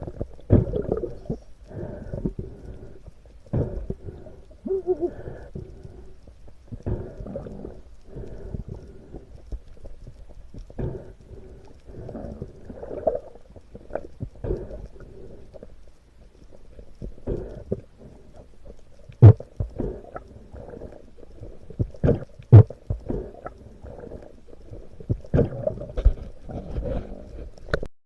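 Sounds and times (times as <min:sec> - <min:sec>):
wavering gurgles: 0:00.0 - 0:02.6, 0:03.5 - 0:06.0, 0:06.8 - 0:09.4, 0:11.9 - 0:15.6, 0:16.6 - 0:27.8
water swishing: 0:00.0 - 0:27.8.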